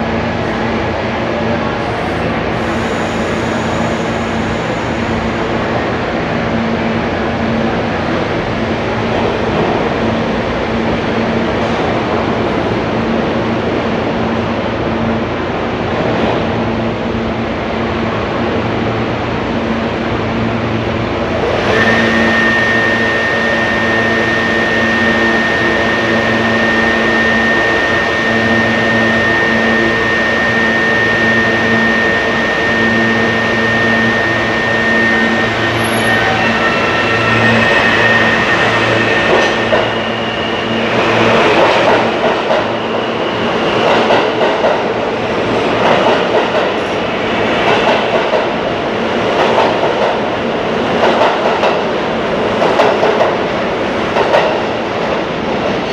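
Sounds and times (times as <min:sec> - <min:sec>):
rail noise: 0:00.0 - 0:55.9
train engine hum: 0:00.0 - 0:55.9
high whine: 0:21.4 - 0:43.8.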